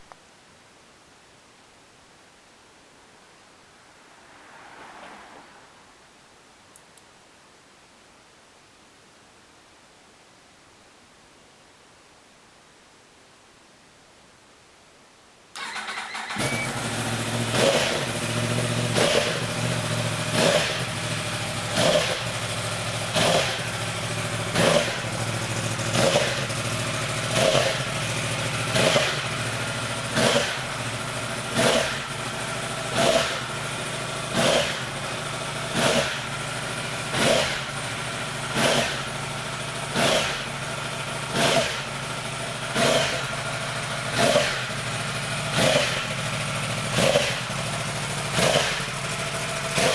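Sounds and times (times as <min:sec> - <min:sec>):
engine idling with surges: 0:15.6 - 0:49.9.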